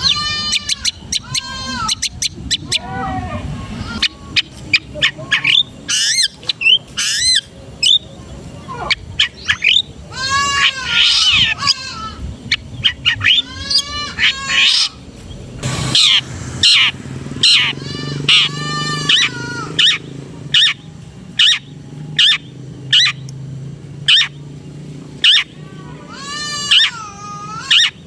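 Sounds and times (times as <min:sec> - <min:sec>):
shrike singing harsh chattering song: 0:15.6 - 0:28.0.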